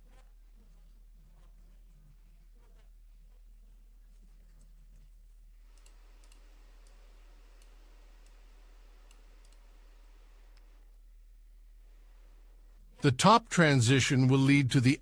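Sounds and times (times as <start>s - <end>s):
low background hiss: 2.9s - 15.0s
computer mouse clicks: 5.7s - 7.0s, 9.0s - 9.7s.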